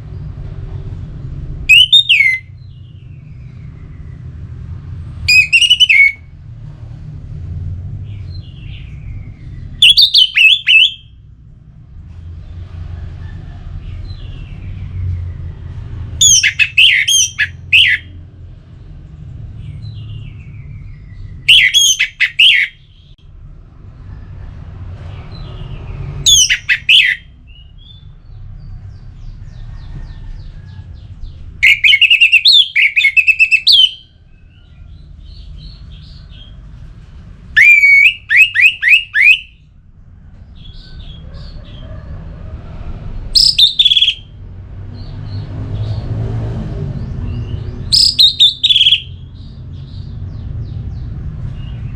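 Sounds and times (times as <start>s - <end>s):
thrush singing whistled notes: 1.7s - 2.6s, 5.3s - 6.3s, 9.6s - 11.2s, 16.2s - 18.2s, 20.4s - 23.2s, 26.2s - 28.1s, 31.6s - 34.2s, 37.5s - 39.7s, 43.4s - 44.4s, 47.8s - 49.4s.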